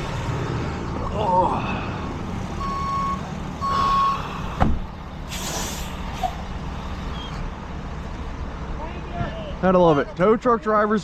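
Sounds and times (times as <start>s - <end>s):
truck engine running: 0.0s - 11.0s
truck reversing alarm beeping: 2.5s - 4.6s
air hiss: 5.3s - 6.4s.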